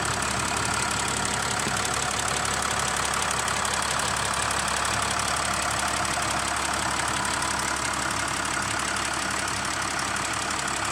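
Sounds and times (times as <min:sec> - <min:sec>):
engine running steadily: 0:00.0 - 0:10.9.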